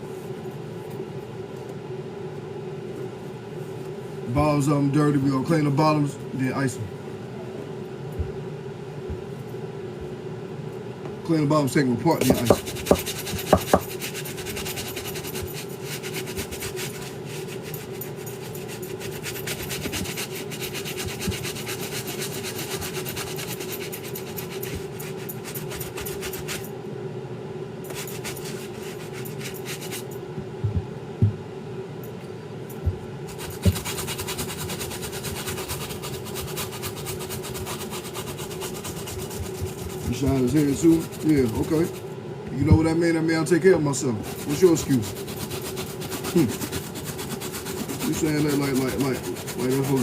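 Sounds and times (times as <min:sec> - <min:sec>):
steady low hum: 0:00.0 - 0:50.0
brush scrubbing rubber soles: 0:12.2 - 0:26.7, 0:27.9 - 0:30.1, 0:33.3 - 0:42.0, 0:44.2 - 0:50.0
knocks: 0:30.6 - 0:31.4.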